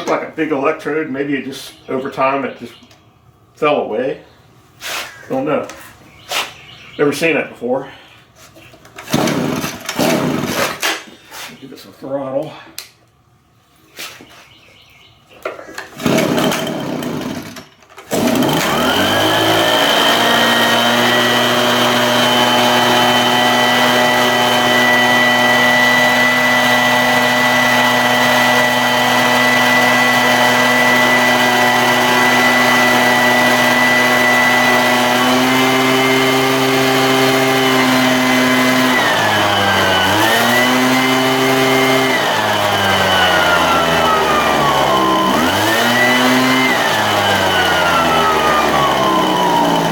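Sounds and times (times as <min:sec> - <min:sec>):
leaf blower engine revving: 0:08.9 - 0:11.5, 0:15.8 - 0:49.9.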